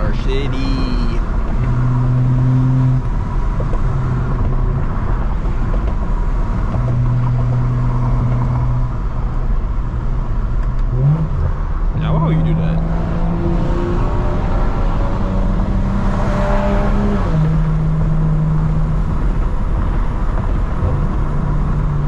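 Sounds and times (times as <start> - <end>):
car engine droning: 0.0 - 22.0
road rumble: 0.0 - 22.0.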